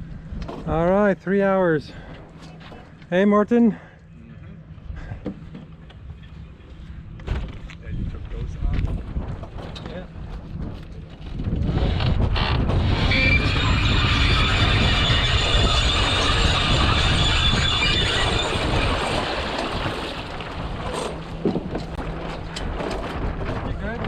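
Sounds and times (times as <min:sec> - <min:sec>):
wind buffeting microphone: 0:04.8 - 0:24.0
dolly wheels rumbling and squealing: 0:10.8 - 0:24.0.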